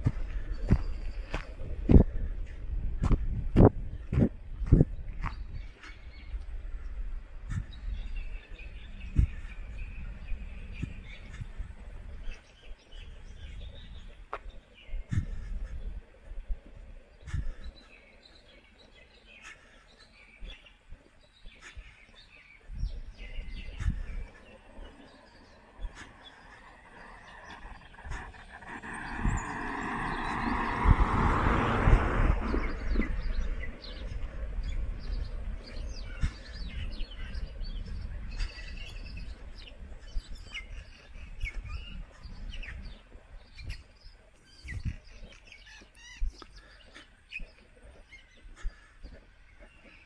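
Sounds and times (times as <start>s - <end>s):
small birds chirping: 0.0s - 50.0s
loud rushing noise: 26.5s - 33.3s.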